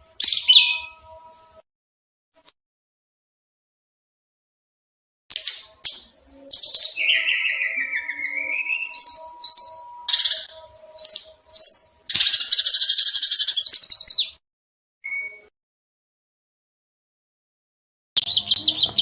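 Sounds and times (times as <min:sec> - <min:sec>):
songbird chirping: 0:00.0 - 0:01.6, 0:05.3 - 0:14.4, 0:18.2 - 0:19.0
bird harsh chattering trill: 0:05.3 - 0:14.4.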